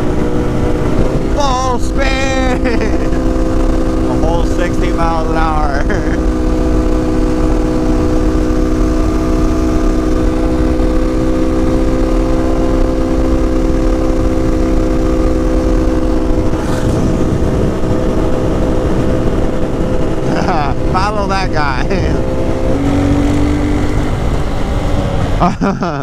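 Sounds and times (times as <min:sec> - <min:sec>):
low rumble of wind: 0:00.0 - 0:26.0
motorcycle engine at high speed: 0:00.0 - 0:26.0.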